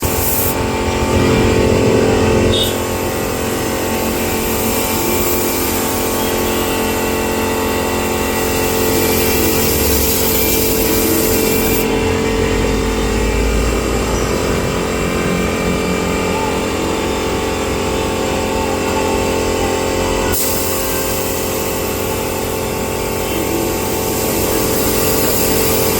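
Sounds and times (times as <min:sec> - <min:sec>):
spray gun hissing: 0:00.0 - 0:01.3, 0:02.5 - 0:12.3, 0:20.3 - 0:25.9
air compressor hum: 0:00.0 - 0:25.9.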